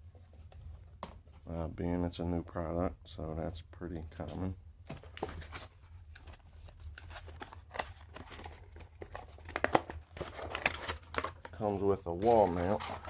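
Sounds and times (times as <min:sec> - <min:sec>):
packaging rustling and crinkling: 0:04.9 - 0:13.0.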